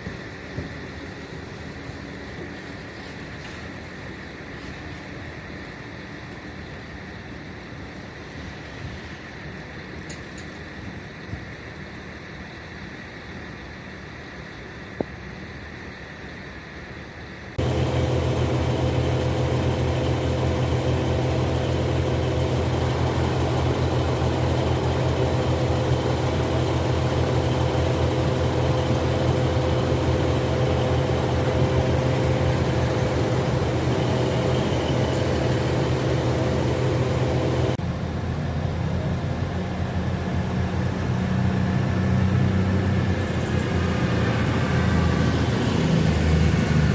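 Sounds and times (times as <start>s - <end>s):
train engine droning: 0.0s - 46.9s
station background: 17.6s - 37.8s.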